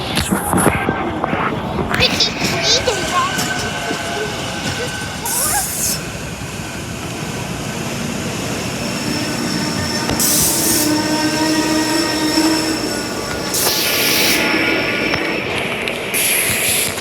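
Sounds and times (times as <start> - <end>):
train wheels squealing: 2.0 - 15.6
hiss bursts: 8.6 - 15.4, 16.1 - 17.0.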